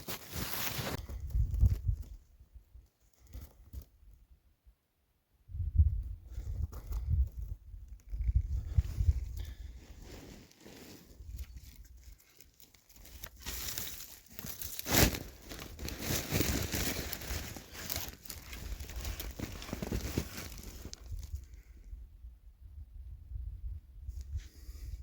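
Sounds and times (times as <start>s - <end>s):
clothing rustling: 0.0s - 1.0s, 10.0s - 21.3s
footsteps crunching: 12.9s - 21.2s.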